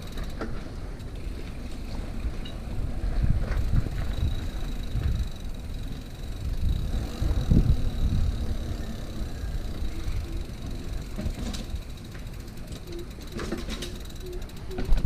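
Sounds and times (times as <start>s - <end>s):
bike tyres rumbling on dirt: 0.0s - 15.0s
wind on microphone: 2.3s - 11.0s.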